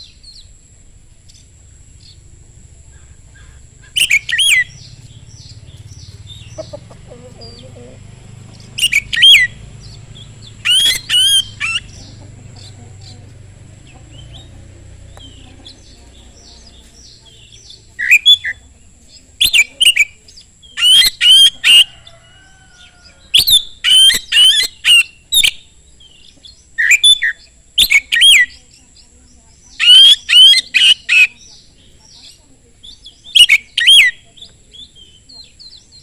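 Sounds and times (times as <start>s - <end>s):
faint bird calls: 1.2s - 36.0s
bird singing whistled notes: 3.0s - 6.7s, 8.5s - 12.2s, 16.7s - 18.7s, 19.4s - 22.2s, 23.3s - 36.0s.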